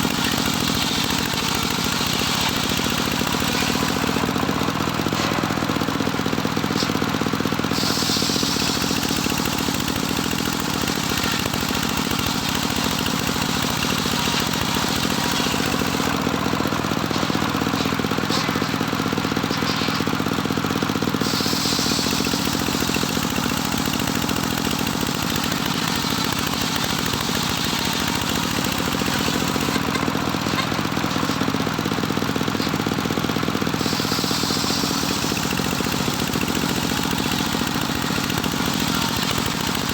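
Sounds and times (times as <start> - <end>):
circular saw engine droning: 0.0 - 39.9
saw blade hissing: 7.7 - 11.8, 21.2 - 23.4, 33.7 - 37.4.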